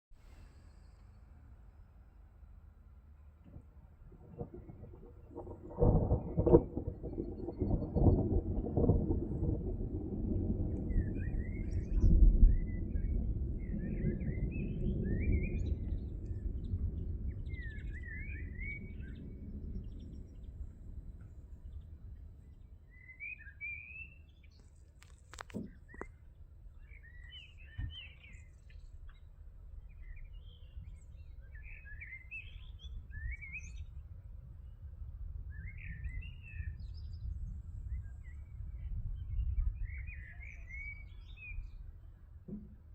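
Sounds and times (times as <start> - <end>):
low rumble: 0.2 - 23.4
songbirds chirping: 0.2 - 42.9.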